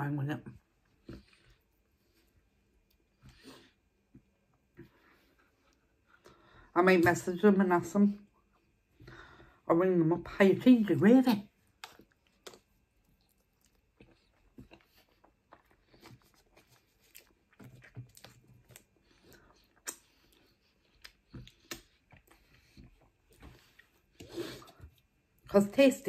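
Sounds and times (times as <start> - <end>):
quiet chewing: 0.8 - 6.6, 11.4 - 25.5.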